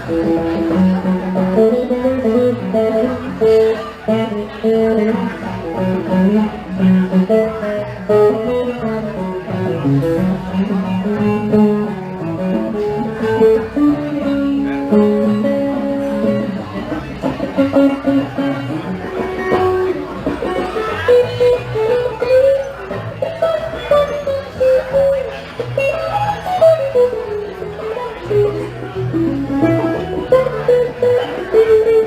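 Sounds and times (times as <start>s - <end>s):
guitar picking melodic line: 0.0s - 32.0s
live band music: 0.0s - 32.0s.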